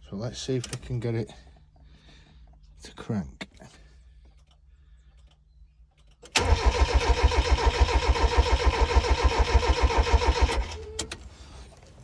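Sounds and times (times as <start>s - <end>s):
starter motor cranking engine: 6.3s - 11.5s.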